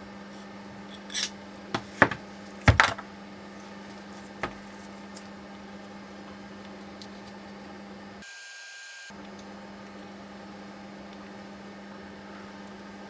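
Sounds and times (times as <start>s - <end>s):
steady low hum: 9.1s - 13.0s.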